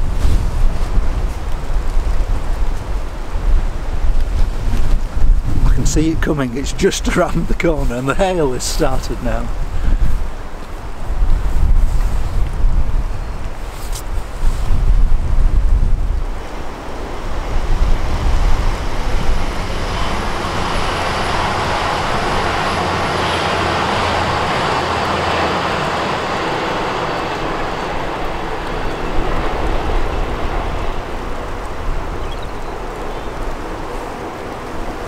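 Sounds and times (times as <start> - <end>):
wind buffeting microphone: 0.0 - 35.0
train passing: 16.2 - 35.0.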